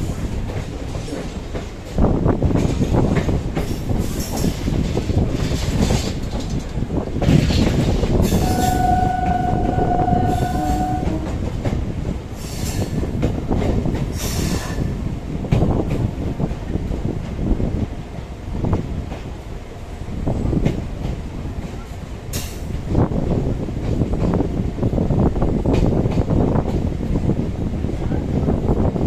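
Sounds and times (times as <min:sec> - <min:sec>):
train wheels rumbling on track: 0:00.0 - 0:29.0
train horn blast: 0:08.3 - 0:11.7.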